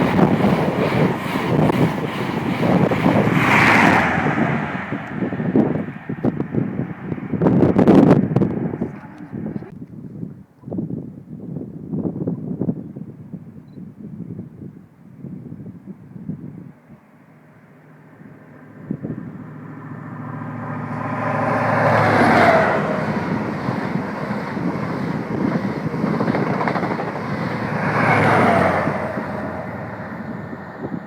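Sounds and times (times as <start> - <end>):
train passing at speed: 0.0 - 9.7, 16.6 - 31.0.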